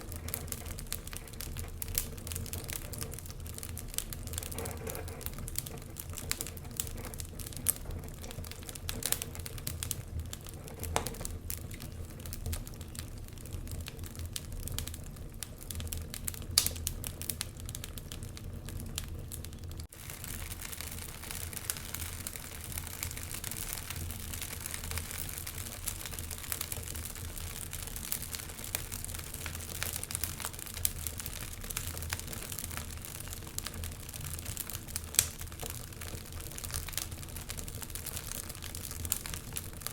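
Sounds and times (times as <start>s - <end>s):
fire hissing: 0.0s - 39.9s
wood fire crackling: 0.0s - 39.9s.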